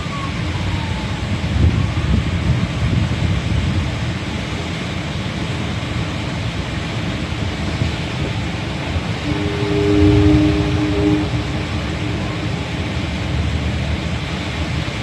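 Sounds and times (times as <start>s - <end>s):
rain: 0.0s - 9.2s
city traffic rumble: 0.0s - 15.0s
two-note horn chord: 8.6s - 14.3s.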